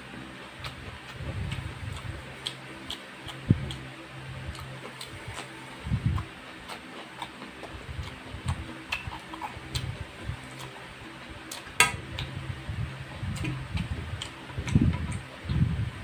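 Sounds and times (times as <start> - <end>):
person chewing noodles: 0.6 - 12.4, 13.3 - 15.4.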